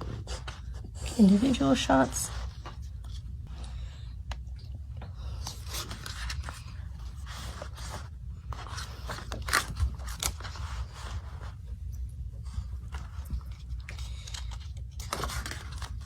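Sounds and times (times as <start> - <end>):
steady low hum: 0.0 - 16.0
paper pages rustling: 5.1 - 11.8, 12.4 - 16.0.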